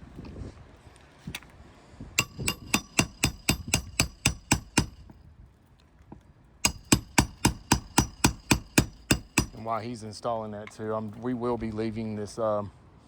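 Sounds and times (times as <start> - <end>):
hammer driving nails: 2.2 - 5.2, 6.6 - 9.7.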